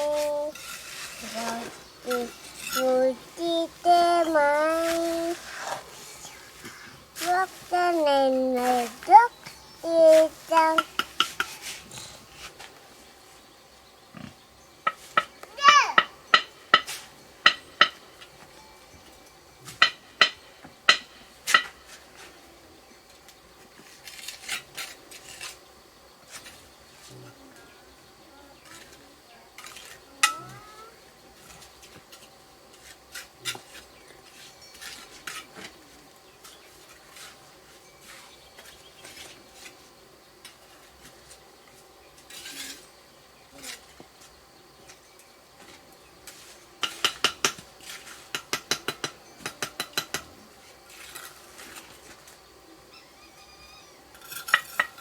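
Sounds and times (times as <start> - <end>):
faint steady hum: 0.0 - 55.0
utensils clinking against pot: 54.2 - 55.0.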